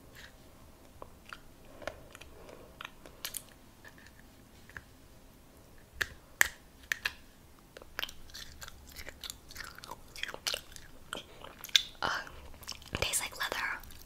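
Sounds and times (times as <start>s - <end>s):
crunchy chewing: 1.0s - 4.8s, 7.8s - 13.0s.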